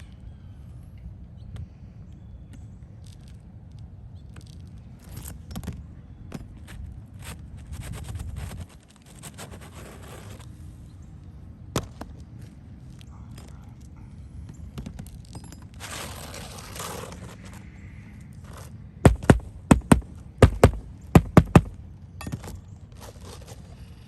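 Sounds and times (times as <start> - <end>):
scraping and shuffling on roof: 6.5 - 10.7, 15.0 - 17.7, 22.8 - 24.0.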